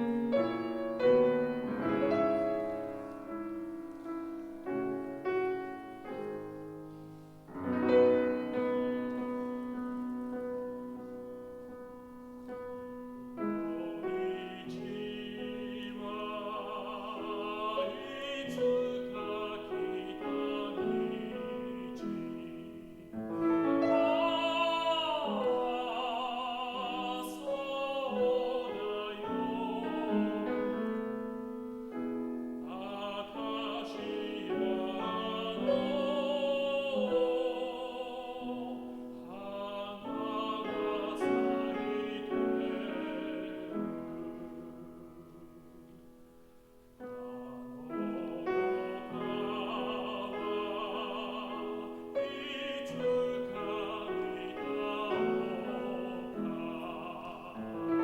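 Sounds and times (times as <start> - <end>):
grand piano: 0.0 - 58.0
man singing operatically: 13.3 - 31.5, 32.2 - 45.8, 47.0 - 58.0.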